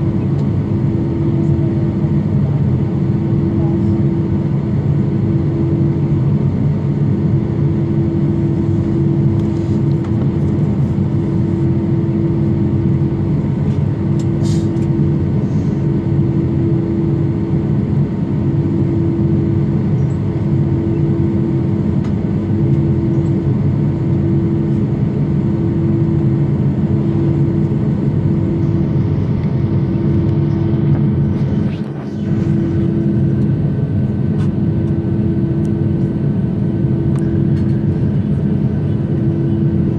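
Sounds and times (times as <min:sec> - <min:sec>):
airliner cabin hum: 0:00.0 - 0:39.9
low drone: 0:27.9 - 0:34.3.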